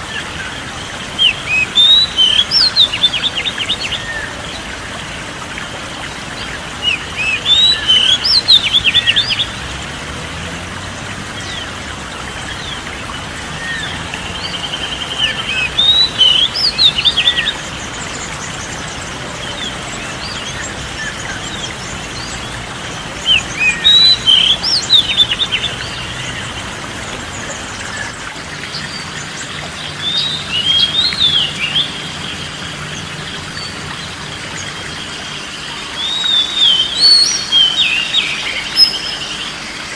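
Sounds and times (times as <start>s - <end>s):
bird singing whistled notes: 1.2s - 4.4s, 6.9s - 9.5s, 13.6s - 17.7s, 23.2s - 26.0s, 36.0s - 39.4s.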